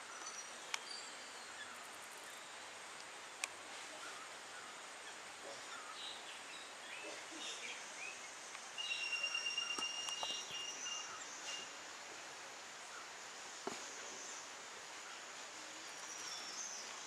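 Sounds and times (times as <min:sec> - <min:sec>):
bird chirps: 0:04.1 - 0:11.7.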